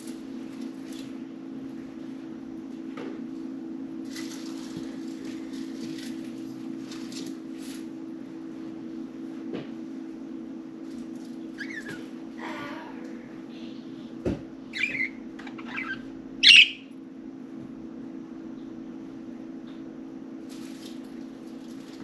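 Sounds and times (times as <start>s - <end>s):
steady low hum: 0.0s - 22.0s
budgerigars chirping: 14.8s - 16.9s.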